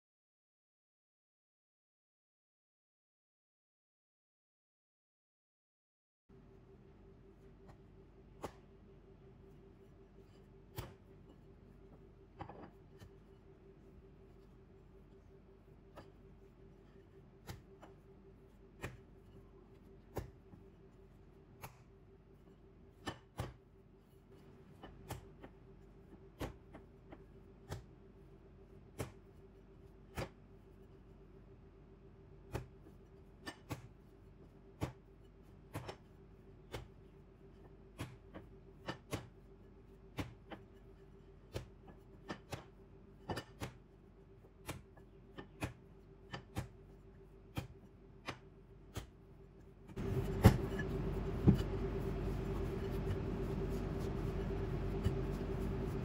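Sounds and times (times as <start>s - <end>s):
steady low hum: 6.3s - 56.0s
dough and bowl knocking on counter: 50.0s - 51.8s.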